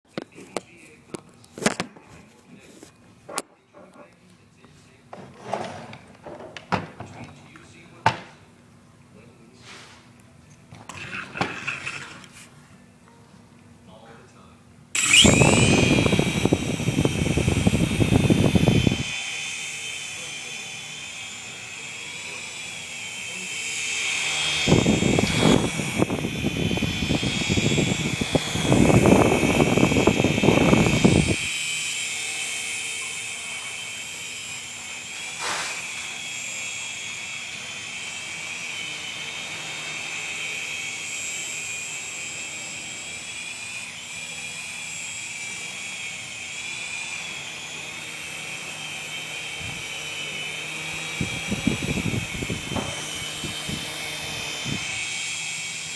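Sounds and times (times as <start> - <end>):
rc helicopter rotor whining: 10.8 - 12.9, 13.9 - 55.9.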